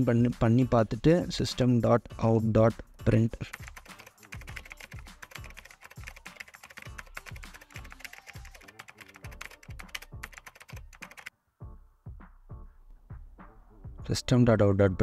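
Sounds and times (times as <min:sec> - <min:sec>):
background music with low beat: 0:00.0 - 0:15.0
fast typing on keyboard: 0:03.4 - 0:11.3.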